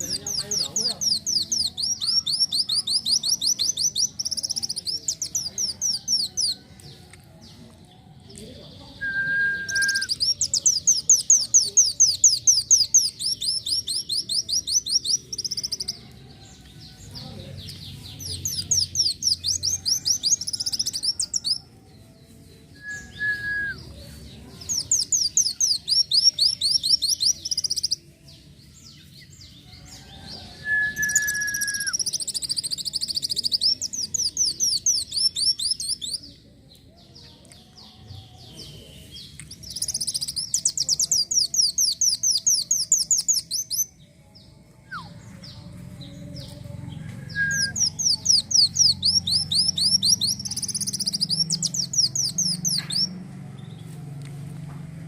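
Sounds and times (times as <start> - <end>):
low bird whistle: 9.0 - 10.3, 30.6 - 32.0.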